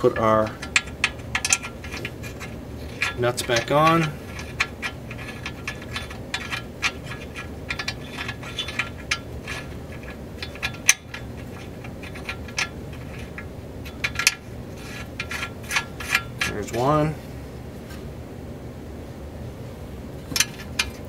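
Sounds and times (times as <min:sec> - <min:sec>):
metal nuts clicking: 0:00.0 - 0:16.9, 0:20.3 - 0:21.0.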